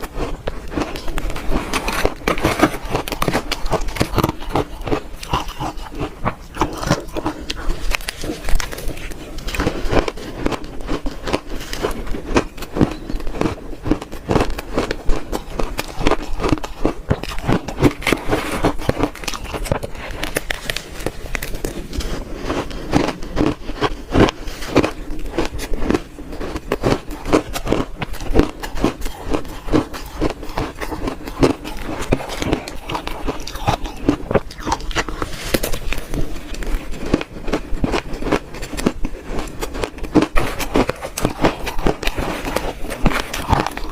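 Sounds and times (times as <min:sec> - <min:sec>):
shaved ice crunching: 0:00.1 - 0:43.9.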